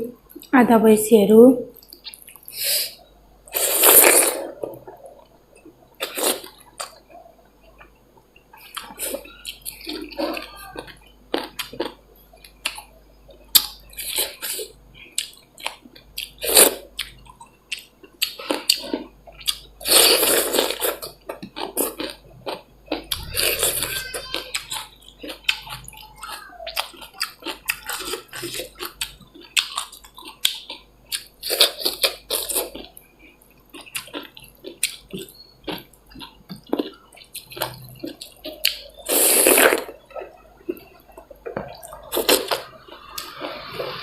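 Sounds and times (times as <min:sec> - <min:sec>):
wet chewing and lip smacking: 0:08.5 - 0:16.4, 0:21.0 - 0:39.1.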